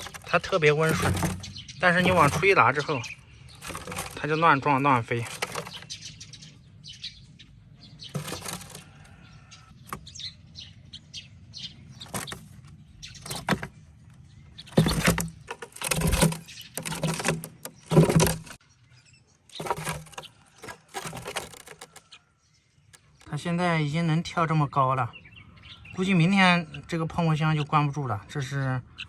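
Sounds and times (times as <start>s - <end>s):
young sparrow chirping: 0.0s - 15.4s, 25.0s - 29.0s.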